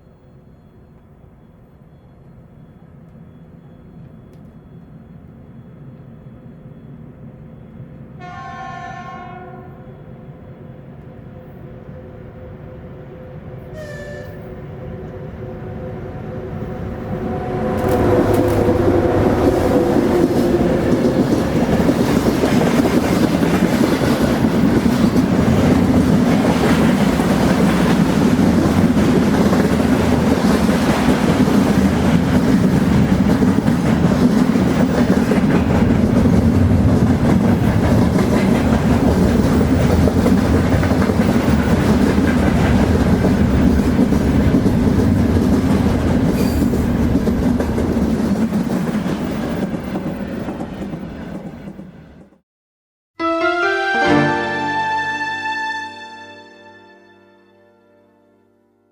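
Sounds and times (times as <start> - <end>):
train wheels clattering over rails: 17.7 - 52.4.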